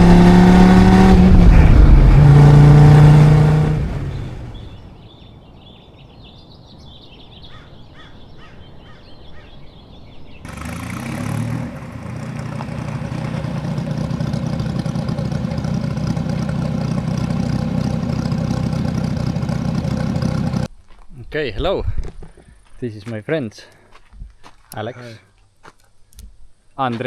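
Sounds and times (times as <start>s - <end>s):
car engine deep rumble: 0.0s - 5.0s, 10.5s - 20.7s
birds chirping faintly: 3.1s - 20.7s.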